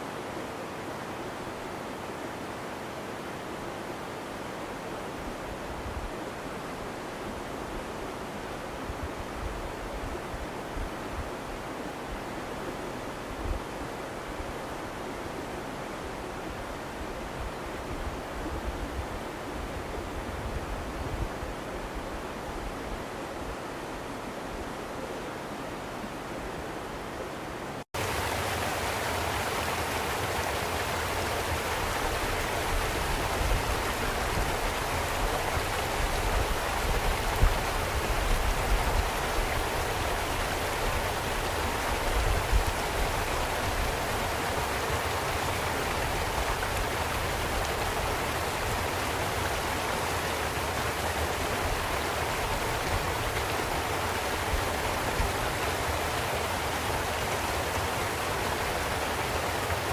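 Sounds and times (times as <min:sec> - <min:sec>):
running water hiss: 0:27.9 - 0:59.9.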